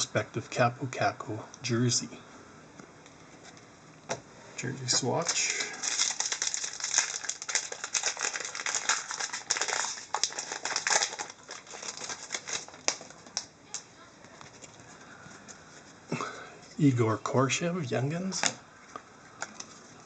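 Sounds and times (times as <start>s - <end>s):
trading cards rustling: 4.8s - 13.8s.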